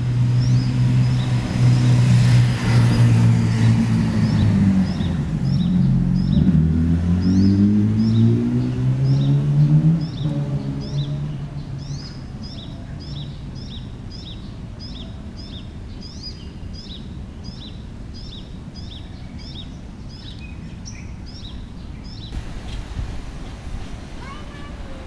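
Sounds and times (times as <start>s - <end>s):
vehicle engine hum: 0.0s - 14.1s, 22.3s - 25.0s
low traffic rumble: 0.0s - 25.0s
bird chirping: 0.4s - 25.0s.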